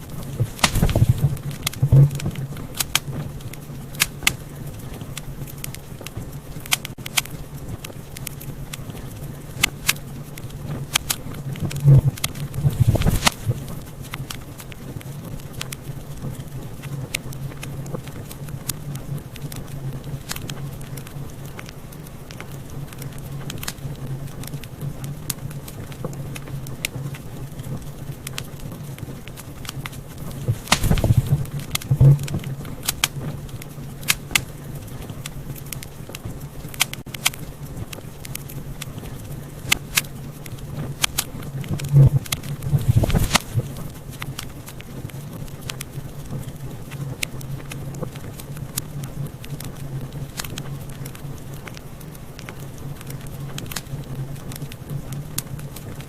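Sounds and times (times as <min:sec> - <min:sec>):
low hum: 0:00.0 - 0:56.0
wood fire crackling: 0:00.0 - 0:56.0.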